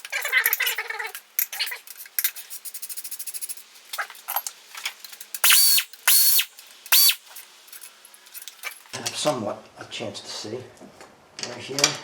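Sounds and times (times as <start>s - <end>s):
ratchet clicking: 5.3s - 7.2s
power tool whining: 5.4s - 7.2s.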